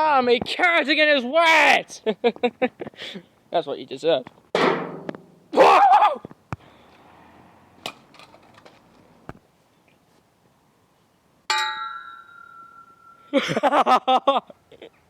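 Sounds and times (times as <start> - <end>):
bright metallic ding: 11.5 - 13.4.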